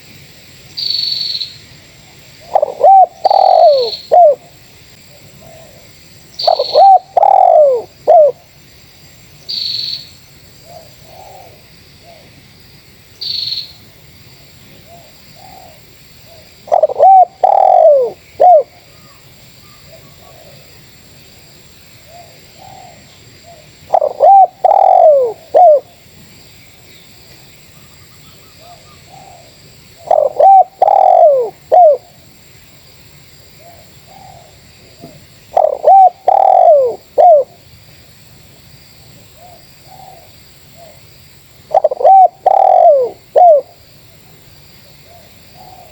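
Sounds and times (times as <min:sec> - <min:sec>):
doves cooing: 0:02.4 - 0:04.6, 0:06.4 - 0:08.4, 0:14.9 - 0:19.2, 0:22.1 - 0:26.0, 0:28.6 - 0:32.1, 0:33.6 - 0:37.6, 0:41.7 - 0:43.8.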